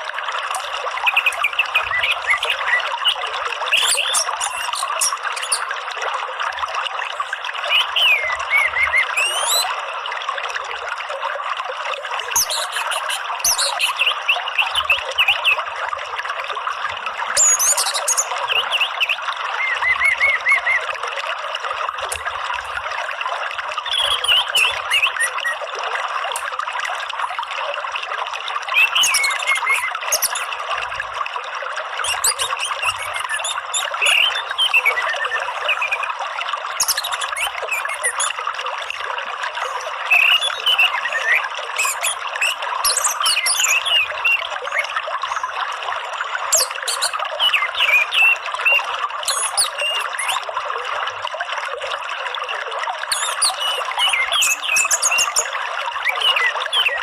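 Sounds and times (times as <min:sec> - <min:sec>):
trickling flowing water: 0:00.0 - 0:57.0
bird chirps: 0:00.6 - 0:05.7, 0:07.6 - 0:09.7, 0:12.2 - 0:15.6, 0:17.4 - 0:20.9, 0:23.9 - 0:25.6, 0:28.7 - 0:30.5, 0:32.0 - 0:36.1, 0:36.7 - 0:38.4, 0:39.6 - 0:45.4, 0:46.5 - 0:50.4, 0:53.1 - 0:57.0
short whistled calls: 0:01.1 - 0:05.8, 0:07.7 - 0:09.7, 0:17.4 - 0:20.9, 0:28.7 - 0:30.5, 0:32.0 - 0:36.1, 0:36.7 - 0:38.4, 0:39.6 - 0:45.4, 0:46.5 - 0:50.4, 0:53.1 - 0:57.0.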